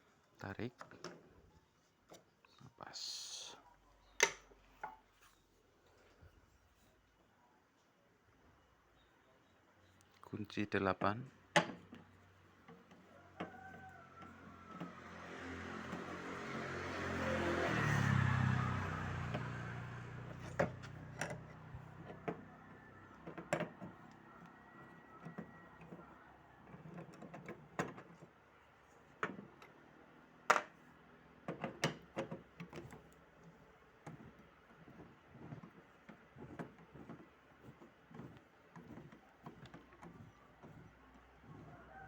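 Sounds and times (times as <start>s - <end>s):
vehicle passing: 14.3s - 23.2s.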